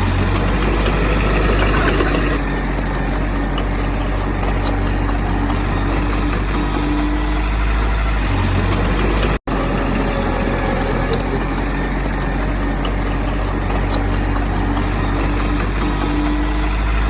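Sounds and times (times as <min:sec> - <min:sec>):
heavy diesel engine humming: 0:00.0 - 0:17.0.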